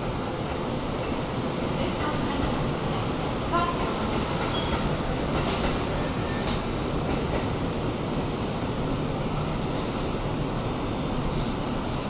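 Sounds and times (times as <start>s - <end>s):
high wheel squeal: 3.6s - 6.4s.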